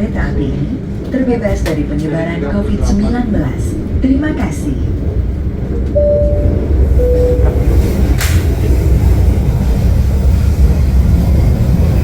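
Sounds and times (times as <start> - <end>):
train carriage rumble: 0.0 - 12.0
two-tone chime: 6.0 - 7.8.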